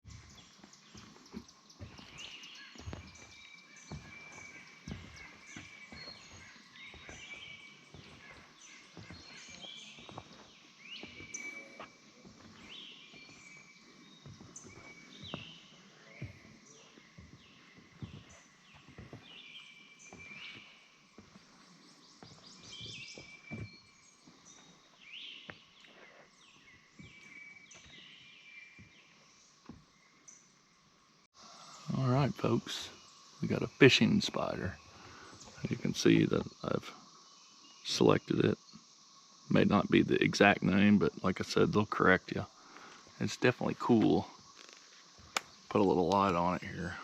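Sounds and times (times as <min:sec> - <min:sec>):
soft footsteps: 0:00.0 - 0:30.0
birds singing and chirping: 0:00.0 - 0:47.0
swamp forest hum: 0:00.0 - 0:47.0.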